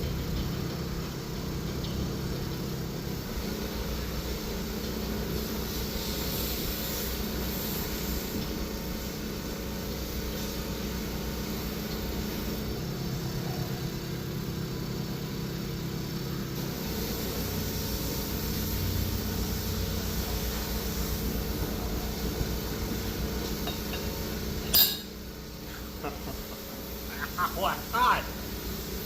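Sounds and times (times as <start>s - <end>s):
machine humming and pulsing: 0.0s - 5.6s.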